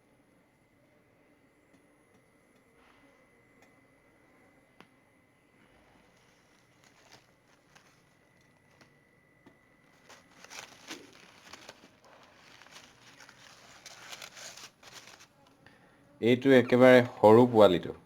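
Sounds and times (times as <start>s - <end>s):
rustling in plastic basket: 5.8s - 8.9s, 9.8s - 15.5s.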